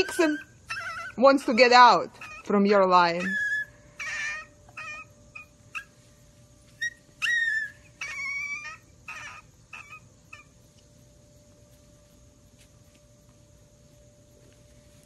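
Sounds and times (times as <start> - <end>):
puppies whimpering and squeaking: 0.0 - 10.7.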